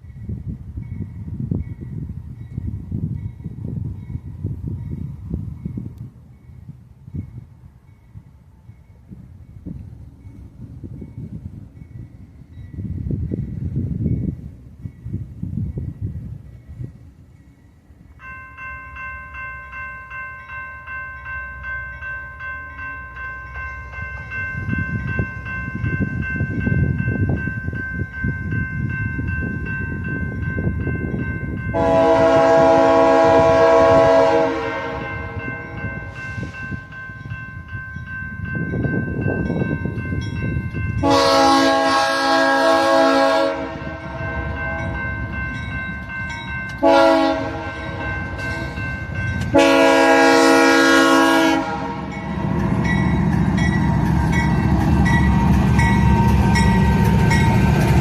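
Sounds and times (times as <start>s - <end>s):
train rumble: 0.0s - 58.0s
diesel locomotive horn: 31.7s - 36.6s, 41.0s - 45.0s, 46.8s - 48.8s, 49.4s - 52.9s
bell ringing: 43.9s - 46.8s, 52.1s - 57.7s.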